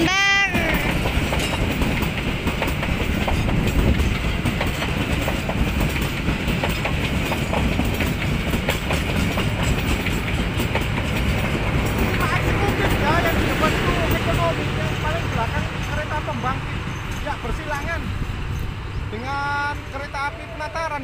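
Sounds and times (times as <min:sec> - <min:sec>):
wheels clicking over rail joints: 0:00.0 - 0:18.7
train wheels rumbling on rails: 0:00.0 - 0:21.0.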